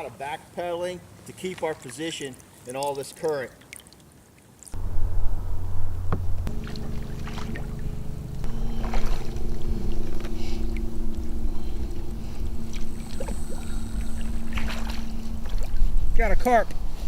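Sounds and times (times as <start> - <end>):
boat motor running: 4.8 - 17.0.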